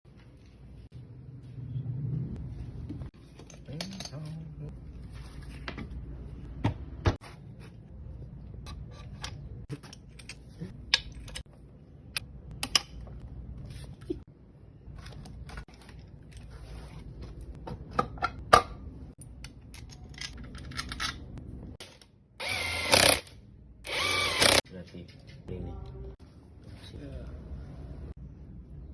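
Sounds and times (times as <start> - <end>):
metal tools clicking and clinking: 3.4 - 4.4
power tool whirring: 22.4 - 24.6.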